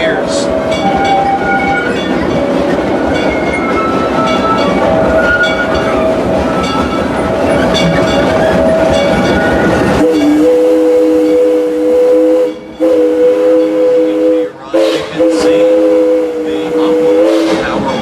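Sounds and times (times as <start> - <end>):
steam locomotive whistle: 0.0 - 2.5, 3.6 - 17.9
train wheels clickety-clack: 0.0 - 10.4, 14.7 - 18.0.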